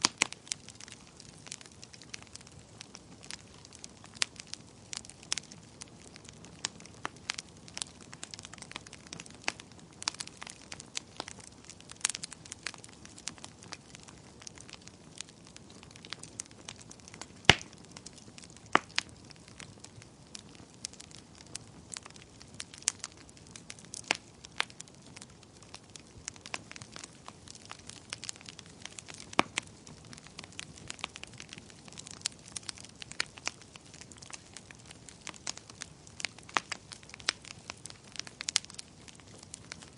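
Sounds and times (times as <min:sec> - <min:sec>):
soft steady hiss: 0:00.0 - 0:39.9
wood fire crackling: 0:00.0 - 0:39.9.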